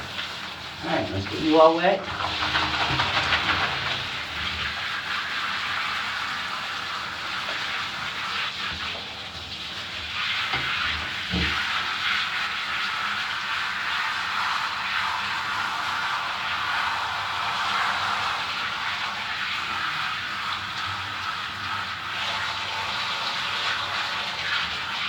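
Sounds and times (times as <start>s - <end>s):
bath water running: 0.0s - 25.0s.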